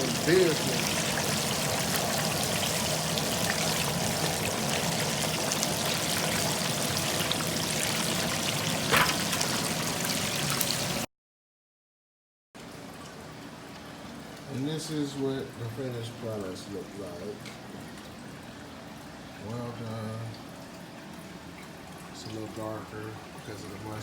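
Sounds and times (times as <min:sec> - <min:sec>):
oil sizzling and bubbling: 0:00.0 - 0:11.1, 0:12.6 - 0:24.0
sharp pop of hot oil: 0:08.9 - 0:09.4.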